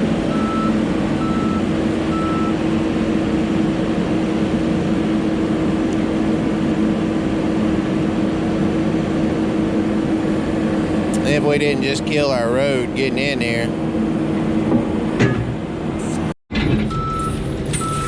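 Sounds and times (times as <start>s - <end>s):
diesel engine running under load: 0.0s - 18.0s
backup alarm beeping: 0.3s - 2.6s, 16.9s - 18.0s.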